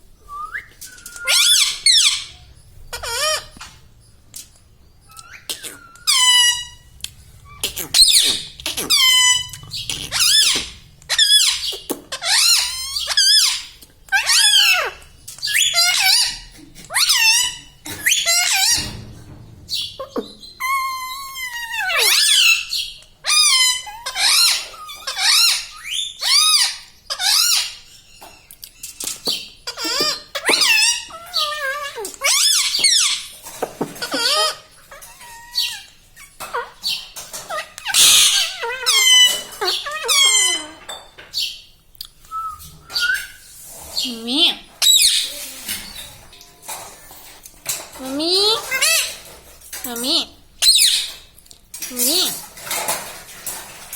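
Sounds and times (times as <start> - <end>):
parrot squawking: 1.2 - 3.8, 5.1 - 19.0, 19.7 - 27.8, 34.0 - 40.8, 48.1 - 49.3.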